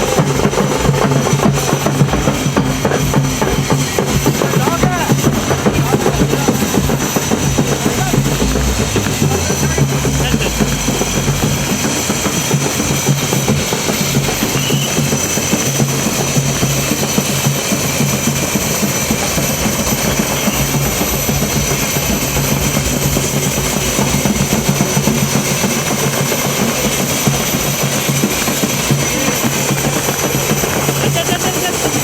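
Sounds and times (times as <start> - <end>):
helicopter rotor and engine: 0.0 - 32.0
high whine: 0.0 - 32.0.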